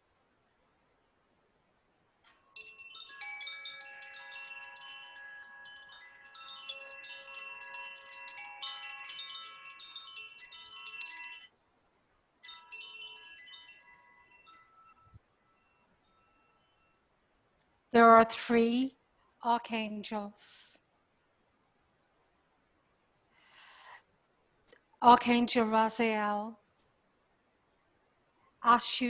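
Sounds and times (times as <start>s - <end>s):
metal chimes ringing: 2.3s - 11.5s, 12.4s - 17.0s.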